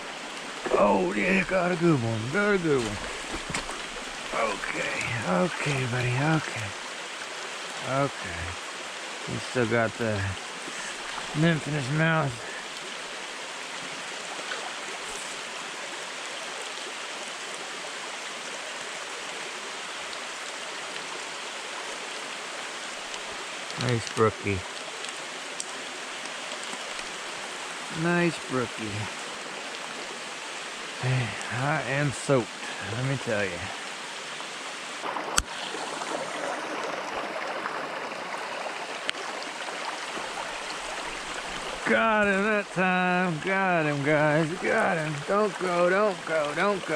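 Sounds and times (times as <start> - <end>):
rain falling: 0.0 - 46.9
stream water rushing: 0.0 - 46.9.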